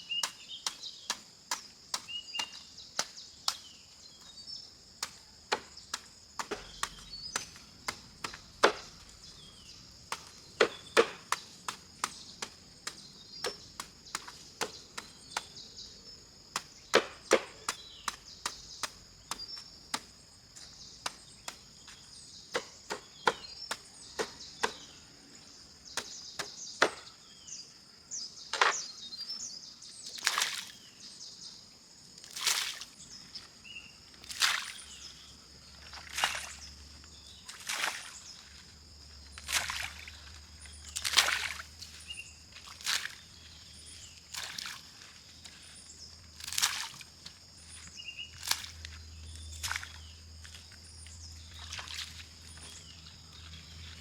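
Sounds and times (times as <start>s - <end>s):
birds chirping: 0.0s - 31.7s, 32.9s - 46.4s, 47.3s - 54.0s
blade chopping strikes: 5.0s - 9.2s, 10.2s - 12.3s, 16.6s - 20.1s.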